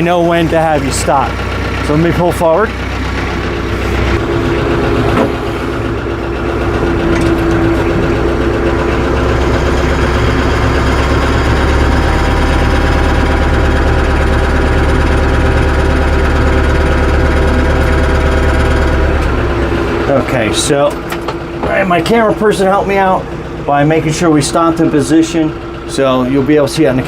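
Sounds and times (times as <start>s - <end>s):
tractor engine running: 0.0s - 27.0s
clunk: 5.1s - 5.7s, 20.9s - 21.8s.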